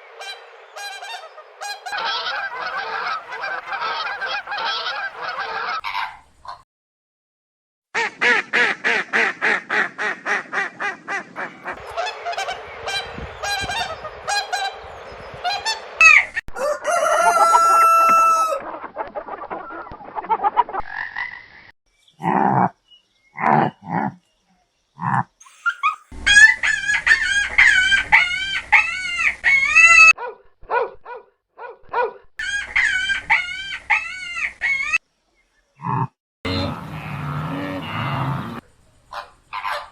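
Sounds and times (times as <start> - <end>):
poultry calling: 0.0 - 6.2, 8.2 - 19.9, 25.0 - 30.1, 35.8 - 39.9.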